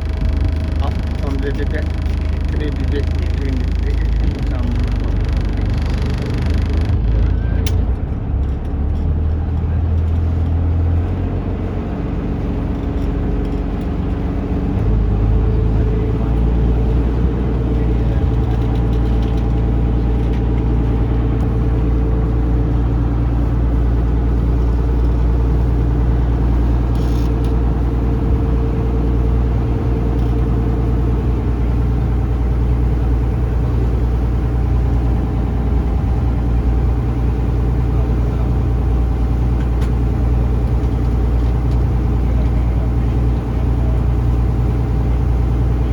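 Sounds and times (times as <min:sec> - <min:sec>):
boat engine humming: 0:00.0 - 0:45.9.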